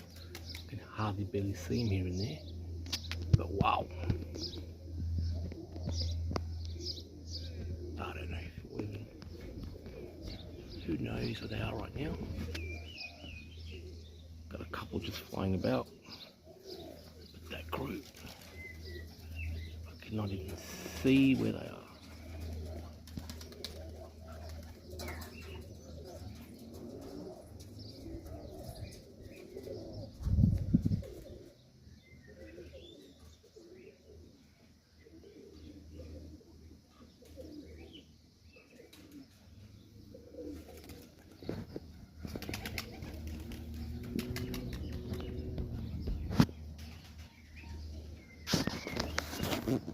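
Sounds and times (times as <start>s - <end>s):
wings flapping: 0.0s - 0.7s, 17.7s - 19.2s, 22.0s - 25.7s, 40.5s - 47.3s, 48.4s - 49.9s
pigeons cooing: 0.0s - 49.9s.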